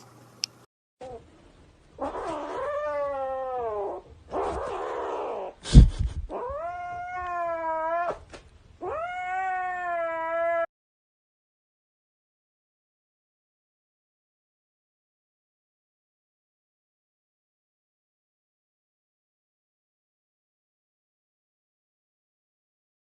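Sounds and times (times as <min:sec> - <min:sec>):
cat meowing: 0:02.0 - 0:05.6, 0:06.3 - 0:10.7.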